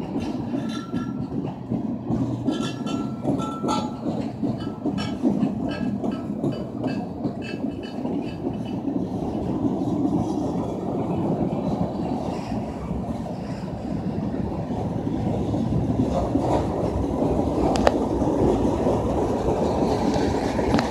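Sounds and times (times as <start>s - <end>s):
train cars rumbling past: 0.0s - 20.9s
metallic clanks: 2.4s - 8.4s.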